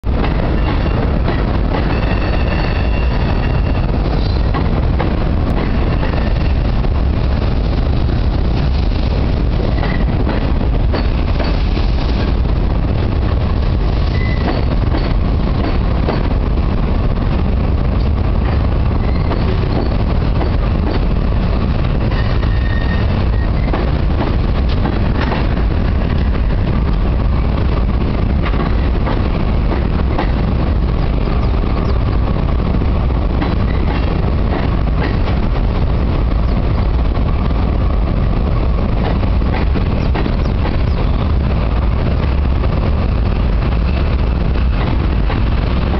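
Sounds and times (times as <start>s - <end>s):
freight train rumbling on bridge: 0.0s - 45.9s
high wheel squeals: 1.9s - 4.5s, 14.1s - 14.7s, 19.0s - 20.0s, 22.1s - 23.7s
clicks of wheels on rails: 13.9s - 16.4s, 22.0s - 27.1s, 28.3s - 30.5s, 38.9s - 41.5s.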